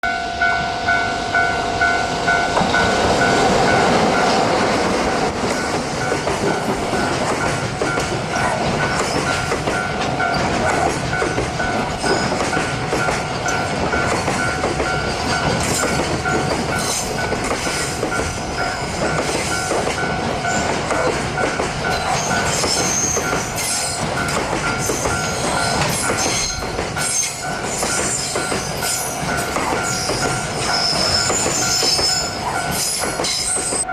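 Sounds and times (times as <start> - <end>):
train wheels clacking over rail joints: 2.5 - 33.9
high-pitched wheel squeal: 22.0 - 24.0, 29.9 - 33.9.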